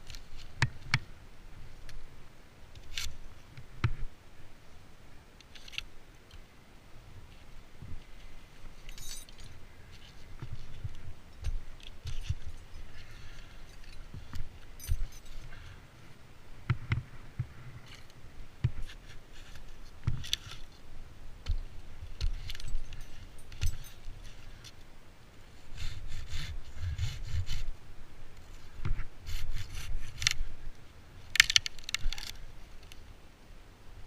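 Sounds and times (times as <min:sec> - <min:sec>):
wood rasping and scraping: 0:25.6 - 0:27.7.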